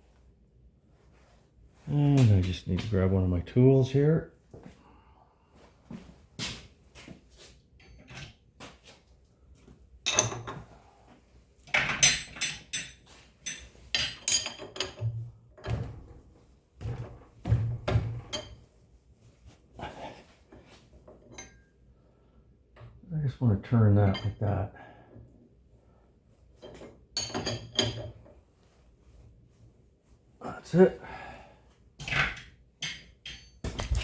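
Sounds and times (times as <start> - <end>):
metal tools clinking: 11.9 - 15.1, 21.3 - 21.7.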